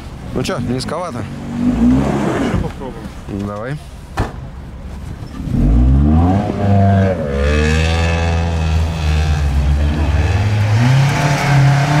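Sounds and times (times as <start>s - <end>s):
car engine revving hard: 0.6s - 2.7s, 5.4s - 12.0s.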